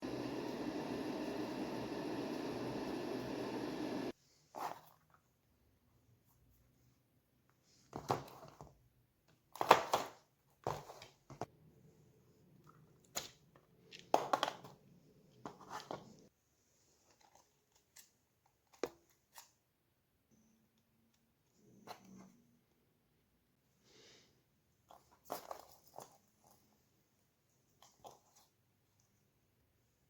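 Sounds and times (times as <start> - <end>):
small parts scraping and rustling: 24.8 - 26.8.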